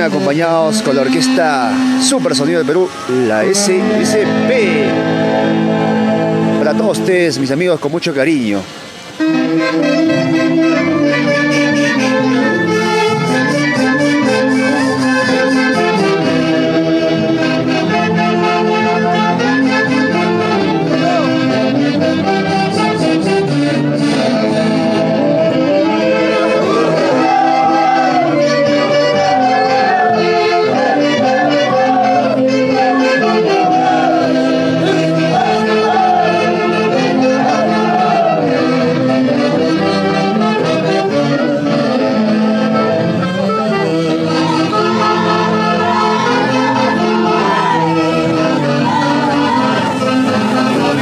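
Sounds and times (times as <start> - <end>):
high wavering melody: 0.0 - 7.3, 9.2 - 38.0
festival orchestra playing: 0.0 - 51.0
saxophones and brass: 0.0 - 51.0.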